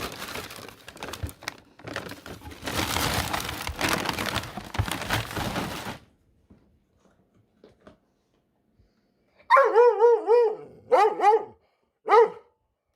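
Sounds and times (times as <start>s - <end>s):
cardboard rustling: 0.0s - 6.2s
dog howling bark: 9.5s - 12.5s.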